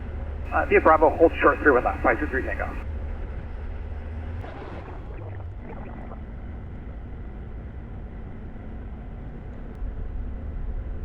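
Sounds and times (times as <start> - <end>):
light aircraft engine idling: 0.5 - 2.8.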